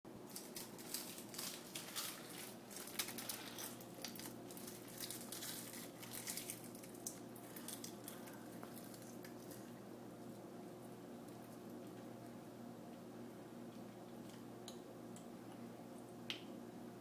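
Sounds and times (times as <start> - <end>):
faint steady hum: 0.1 - 17.0
plastic packaging crinkling: 0.2 - 9.8
seaweed snack crackling: 0.3 - 10.4.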